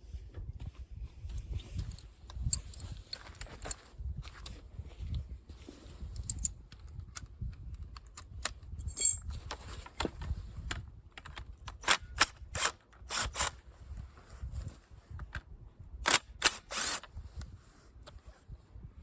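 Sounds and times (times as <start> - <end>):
metal parts clinking: 6.2 - 6.5, 8.8 - 9.3
ringing metallic clink: 8.9 - 9.3.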